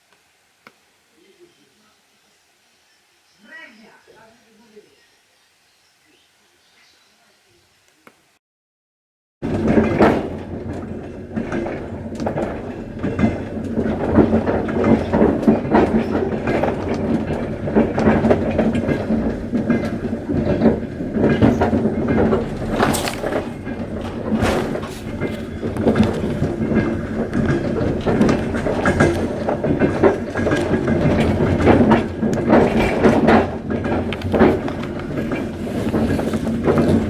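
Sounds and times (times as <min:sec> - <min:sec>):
train rumbling on rails: 0:09.4 - 0:37.0
wheel clicks over track: 0:09.4 - 0:37.0.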